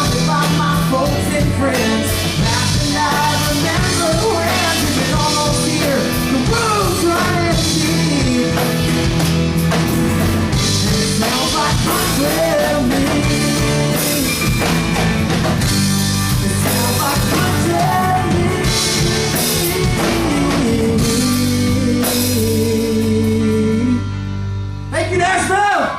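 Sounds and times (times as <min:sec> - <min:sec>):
live country rock band: 0:00.0 - 0:25.9.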